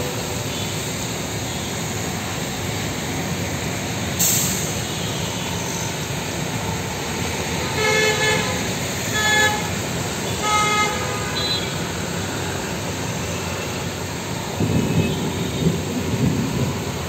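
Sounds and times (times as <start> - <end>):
heavy rain pouring onto a road: 0.0 - 17.0
passing traffic: 0.0 - 17.0
vehicle horn honking: 10.3 - 11.8.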